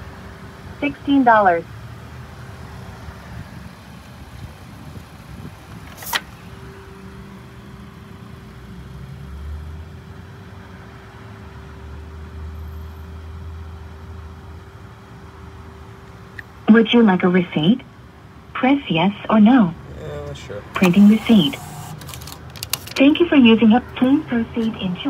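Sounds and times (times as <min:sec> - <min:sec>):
car engine idling: 0:19.3 - 0:25.0.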